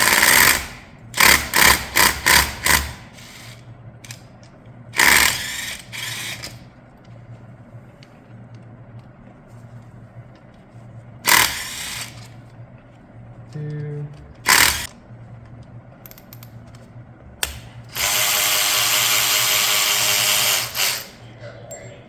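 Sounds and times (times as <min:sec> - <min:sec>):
power tool trigger bursts: 0:00.0 - 0:04.2, 0:05.0 - 0:06.6, 0:11.3 - 0:12.3, 0:14.4 - 0:14.9, 0:17.4 - 0:21.2
faint steady hum: 0:00.0 - 0:22.0.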